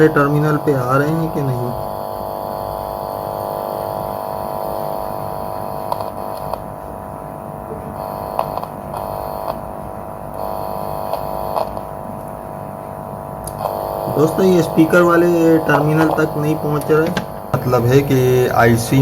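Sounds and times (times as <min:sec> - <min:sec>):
steady mains hum: 0:00.0 - 0:19.0
faint probe clicks: 0:05.9 - 0:06.7, 0:08.3 - 0:09.6, 0:10.3 - 0:11.9, 0:13.4 - 0:14.0.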